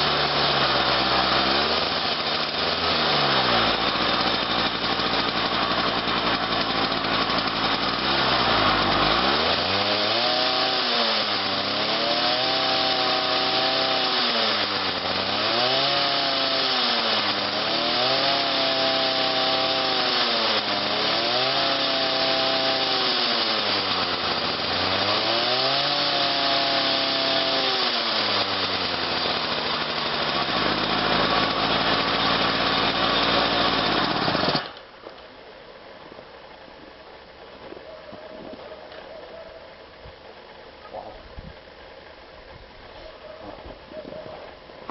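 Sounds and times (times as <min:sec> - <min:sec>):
cold engine revving: 0:00.0 - 0:34.8.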